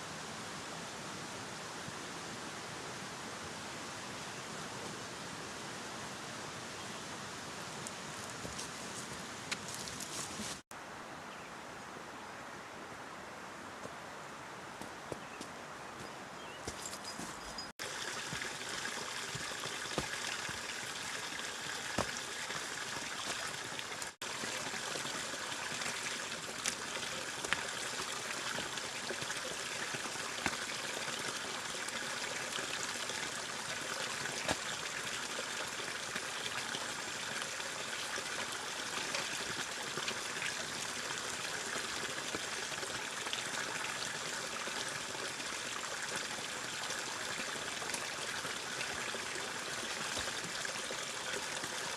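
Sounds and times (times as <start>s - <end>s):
flowing water rushing: 17.8s - 51.9s.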